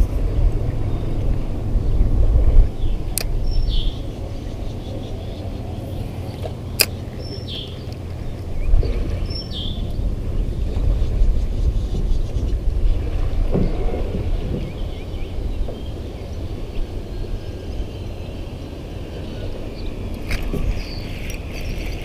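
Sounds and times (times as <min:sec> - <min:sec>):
low rumble: 0:00.0 - 0:22.0
bird chirping: 0:02.8 - 0:10.5.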